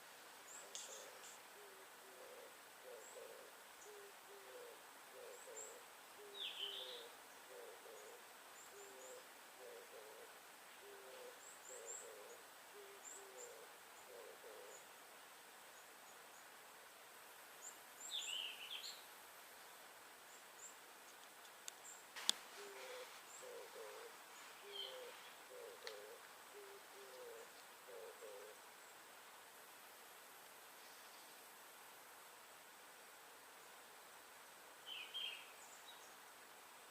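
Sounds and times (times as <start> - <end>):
small birds high chirps: 21.7 - 29.0
bird soft low hooting: 22.5 - 28.6.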